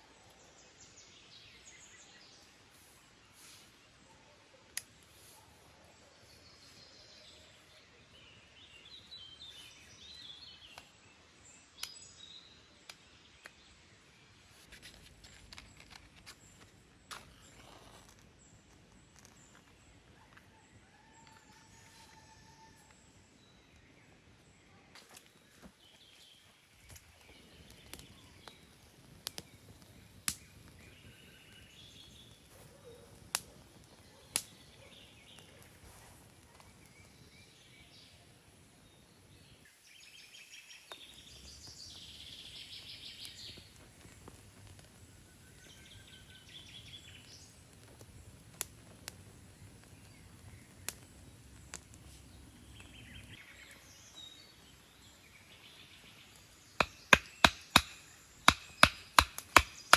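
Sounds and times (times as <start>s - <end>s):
low outdoor background: 0.0s - 59.9s
songbirds chirping and trilling: 15.4s - 59.9s.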